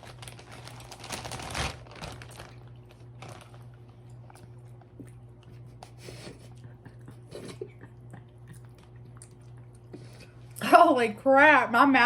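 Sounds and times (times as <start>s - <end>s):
plastic bag crinkling: 0.0s - 4.4s.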